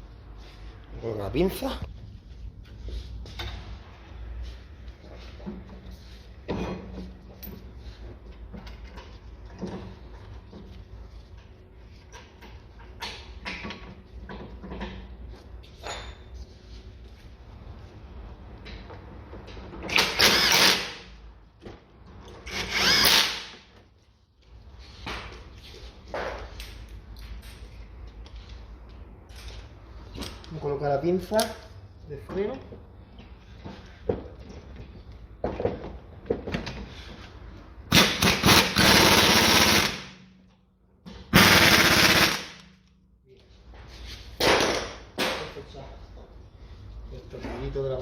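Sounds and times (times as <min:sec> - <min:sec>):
air wrench hammering: 0:19.9 - 0:21.1, 0:22.3 - 0:23.6, 0:37.9 - 0:40.2, 0:41.2 - 0:42.7
handheld power tool whirring: 0:19.9 - 0:21.1, 0:22.4 - 0:23.6, 0:37.9 - 0:40.1, 0:41.3 - 0:42.7.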